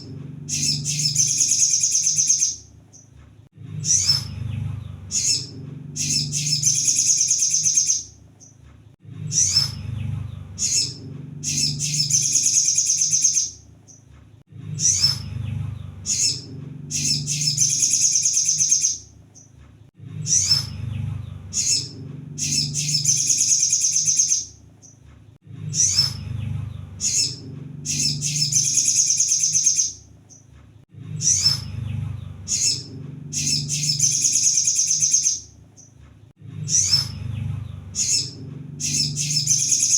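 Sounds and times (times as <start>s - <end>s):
bird chips and high trill: 0.0s - 2.6s, 5.1s - 8.1s, 10.6s - 13.6s, 16.1s - 19.0s, 21.6s - 24.5s, 27.0s - 30.0s, 32.5s - 35.5s, 38.0s - 39.9s.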